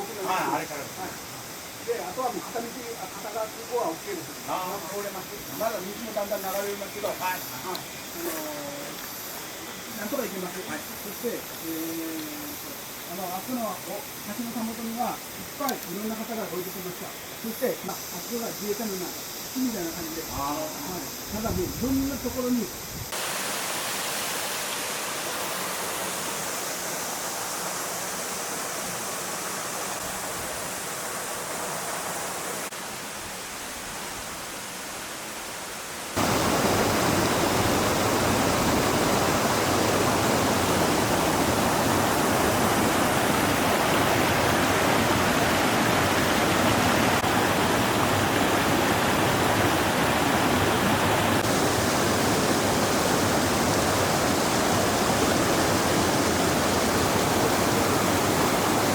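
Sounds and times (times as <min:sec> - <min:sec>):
floodwater rushing: 0:23.1 - 0:58.9.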